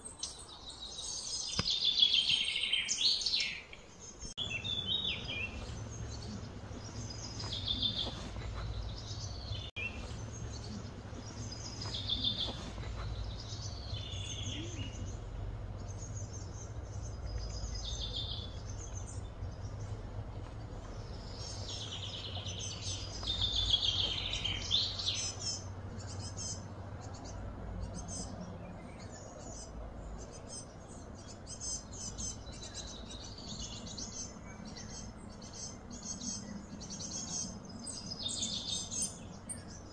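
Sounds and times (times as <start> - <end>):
small birds chirping: 0.0 - 39.9
low rumble: 4.4 - 30.3.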